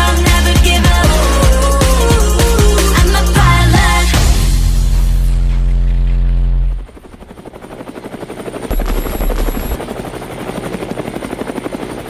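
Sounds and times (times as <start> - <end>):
bass-heavy music: 0.0 - 6.8
helicopter rotor chopping: 6.8 - 12.0
low boom: 8.7 - 9.8.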